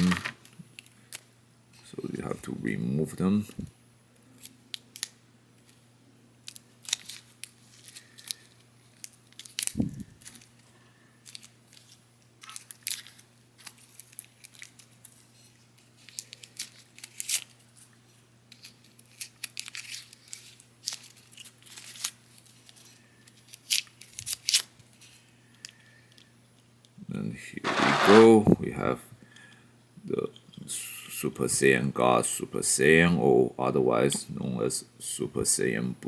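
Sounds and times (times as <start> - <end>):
plastic crinkling and crackling: 6.5 - 17.6, 18.5 - 25.1.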